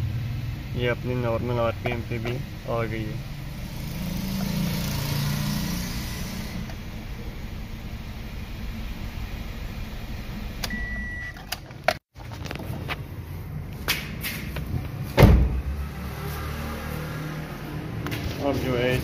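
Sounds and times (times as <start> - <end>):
car engine idling: 5.8 - 10.6
loud thump: 15.2 - 15.7.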